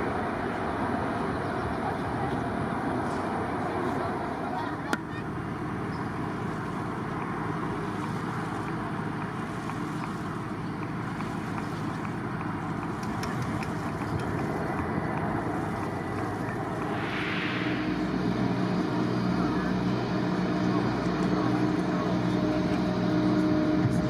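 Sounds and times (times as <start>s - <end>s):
jet engine rush: 13.0s - 24.0s.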